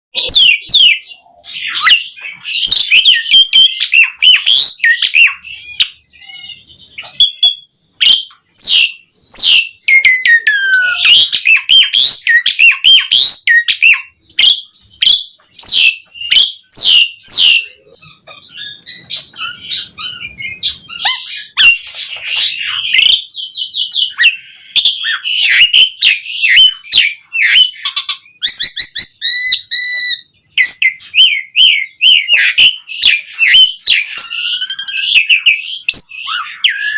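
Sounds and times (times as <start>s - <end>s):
starling singing: 0.1s - 36.9s.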